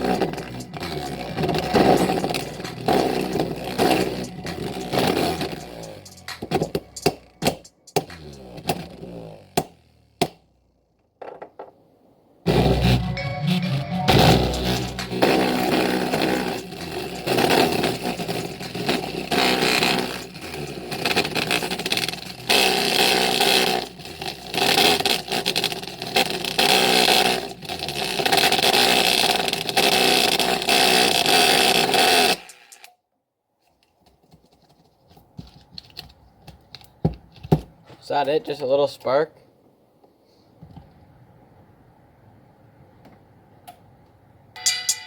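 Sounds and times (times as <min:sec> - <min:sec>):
distorted bass-boosted music: 0:00.0 - 0:09.2, 0:12.5 - 0:32.8.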